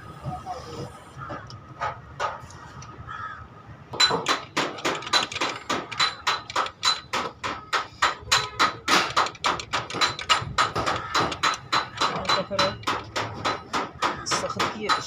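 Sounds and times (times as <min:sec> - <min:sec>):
hammer striking metal: 0:04.0 - 0:15.0.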